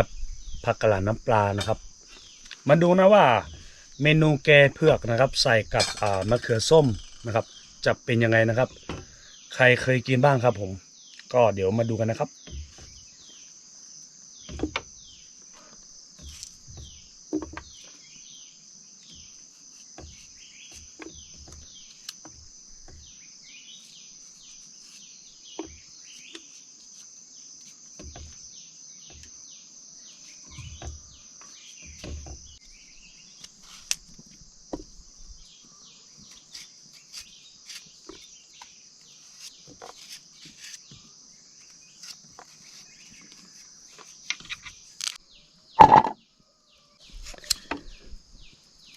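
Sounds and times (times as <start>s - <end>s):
birds chirping: 0.0s - 13.5s
insects droning: 0.0s - 48.9s
short knocks and clicks: 45.8s - 46.2s.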